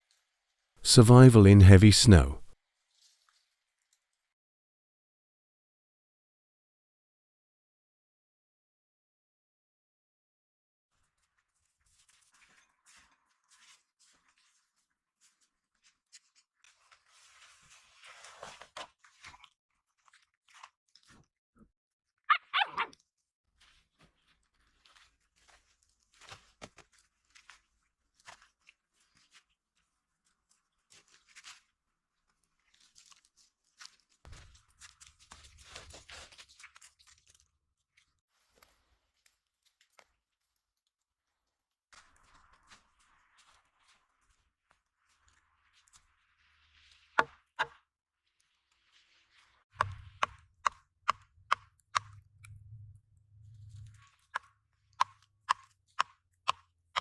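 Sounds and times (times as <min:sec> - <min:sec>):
crunching and rustling: 0:23.6 - 0:37.5.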